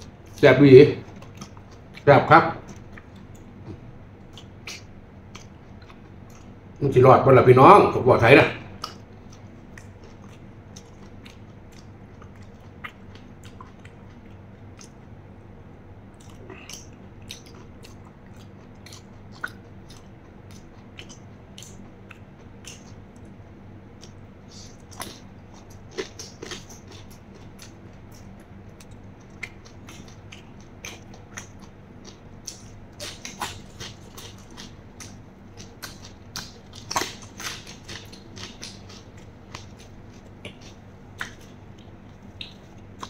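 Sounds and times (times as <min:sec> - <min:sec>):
chewing with crunches: 0:00.0 - 0:06.9, 0:08.6 - 0:43.0
faint steady hum: 0:00.0 - 0:43.0
wet mouth clicks: 0:02.7 - 0:06.5, 0:14.8 - 0:15.0, 0:16.2 - 0:23.3, 0:40.4 - 0:42.8.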